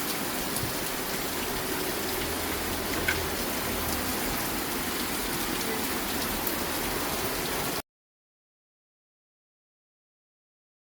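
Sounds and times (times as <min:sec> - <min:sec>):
steady rain falling: 0:00.0 - 0:07.8.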